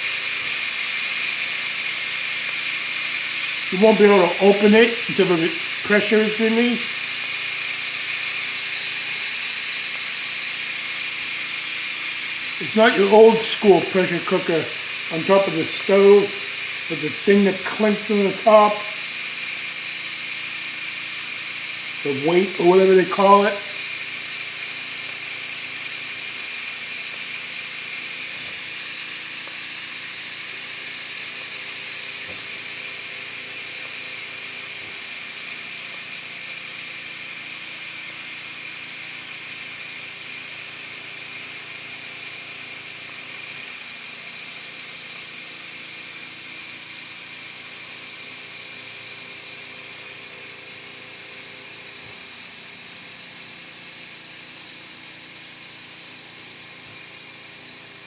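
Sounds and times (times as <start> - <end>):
steam hissing from valve: 0.0 - 58.0.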